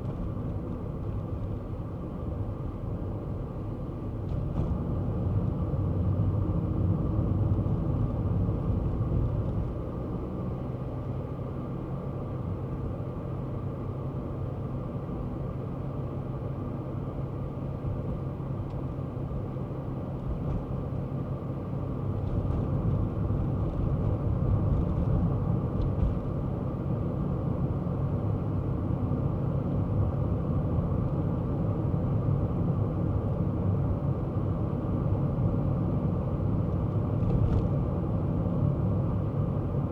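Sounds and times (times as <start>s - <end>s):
car engine hum: 0.0s - 39.9s
road rumble: 0.0s - 39.9s.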